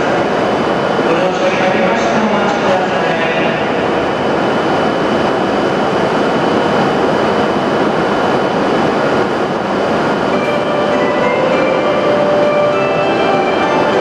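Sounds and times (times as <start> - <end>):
train running noise at platform: 0.0 - 14.0
platform departure melody: 10.2 - 14.0.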